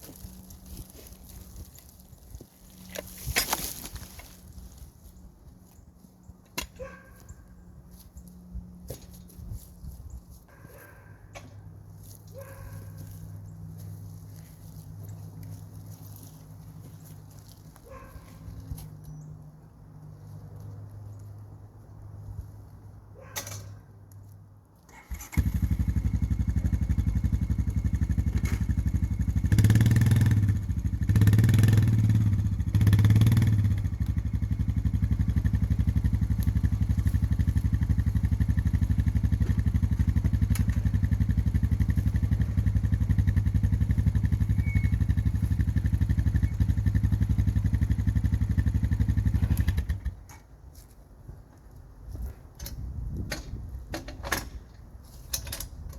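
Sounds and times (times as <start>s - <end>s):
small gasoline engine revving and idling: 24.9s - 50.3s.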